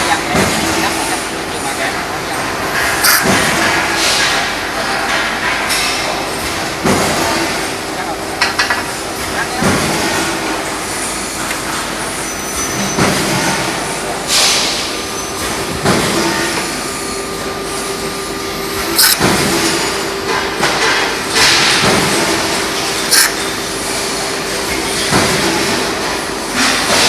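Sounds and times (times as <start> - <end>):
factory hum: 0.0 - 27.0.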